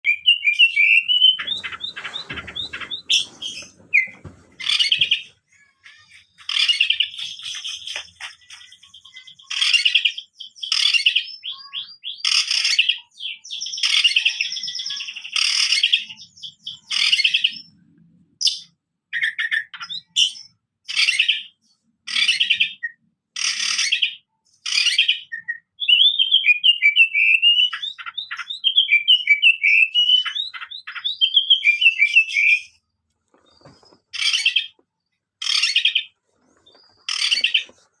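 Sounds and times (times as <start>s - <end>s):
bird singing loudly: 0.0s - 5.2s, 24.7s - 32.8s
rapid bird warbling: 0.1s - 12.9s, 35.4s - 38.0s.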